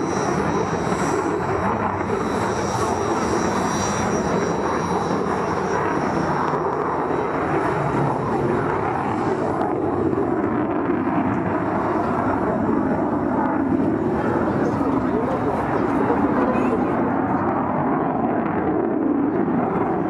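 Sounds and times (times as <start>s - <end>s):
thin high whine: 0.0s - 9.5s
jet engine rushing: 0.0s - 17.4s.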